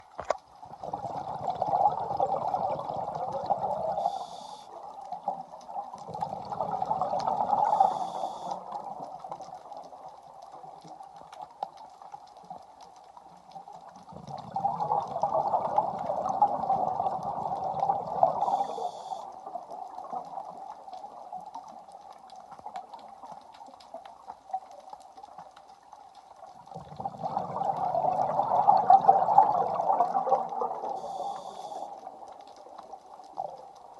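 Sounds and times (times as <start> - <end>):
exhaled bubbles gushing: 0.0 - 10.9, 13.8 - 22.0, 26.3 - 33.9
steady underwater noise: 0.0 - 33.9
high hiss: 7.6 - 8.6.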